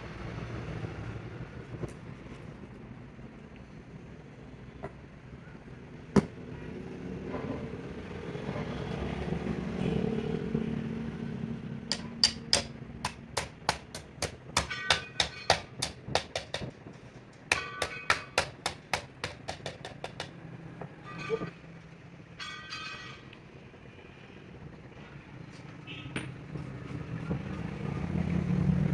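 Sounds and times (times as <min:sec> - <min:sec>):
passing vehicle rumble: 0:00.0 - 0:14.2, 0:23.0 - 0:28.9
hammer striking metal: 0:11.9 - 0:20.4, 0:22.4 - 0:23.3.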